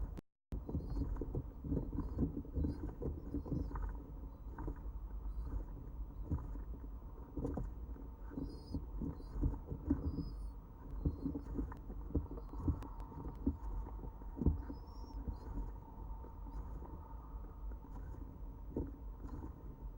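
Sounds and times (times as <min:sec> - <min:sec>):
faint high bird chirps: 0:05.2 - 0:06.3, 0:08.3 - 0:17.4.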